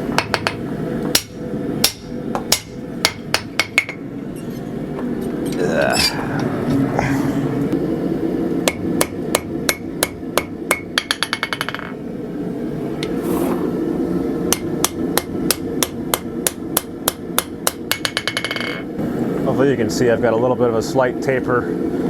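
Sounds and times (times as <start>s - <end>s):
hammer striking steel on anvil: 0.1s - 4.0s, 8.6s - 11.9s, 14.5s - 18.8s.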